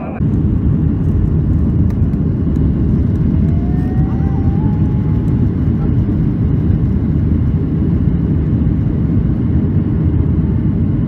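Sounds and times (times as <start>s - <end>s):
airliner roar: 0.0s - 11.0s.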